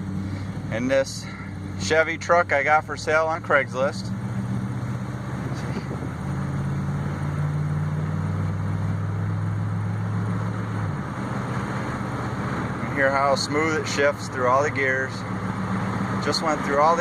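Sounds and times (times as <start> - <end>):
pickup truck engine accelerating: 0.0 - 17.0.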